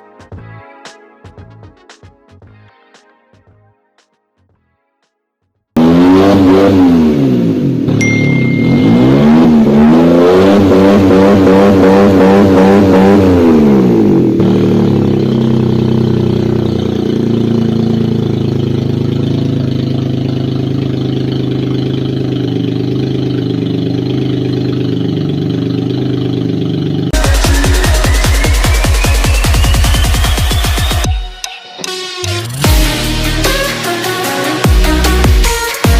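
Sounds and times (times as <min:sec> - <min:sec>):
electronic music: 0:00.0 - 0:04.2, 0:08.0 - 0:10.0, 0:27.2 - 0:35.9
car engine revving and idling: 0:05.8 - 0:31.1.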